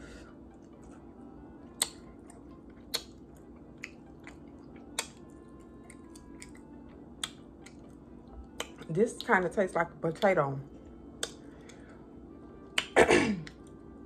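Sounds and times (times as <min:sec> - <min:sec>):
person chewing with mouth clicks: 0:01.6 - 0:08.9, 0:11.1 - 0:11.9, 0:12.7 - 0:13.7.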